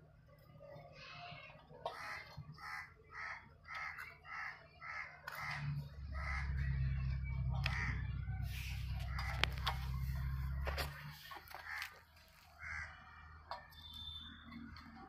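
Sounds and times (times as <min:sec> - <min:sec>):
bird calling: 0:01.9 - 0:15.0
low steady rumble: 0:05.5 - 0:11.8.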